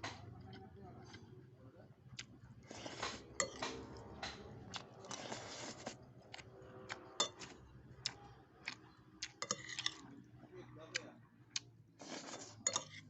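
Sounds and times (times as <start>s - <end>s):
cutlery clinking against bowl: 2.8s - 4.5s, 9.4s - 10.1s, 12.2s - 13.0s.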